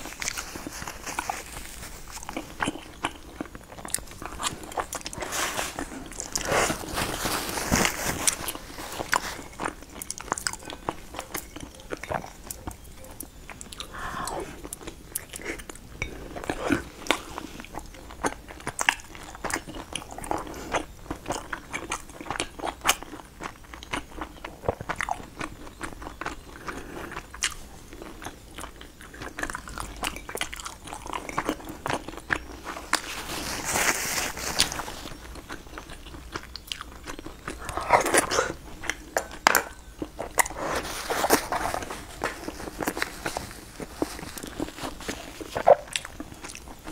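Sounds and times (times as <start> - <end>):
person chewing soft food: 0.0 - 46.9
slurping sound: 37.6 - 38.6.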